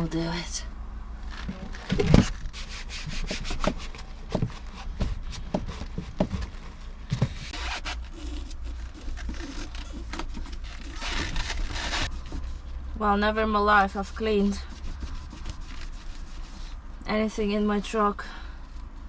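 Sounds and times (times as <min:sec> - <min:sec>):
hand scrubbing fridge interior: 0:01.6 - 0:12.7, 0:13.5 - 0:16.7.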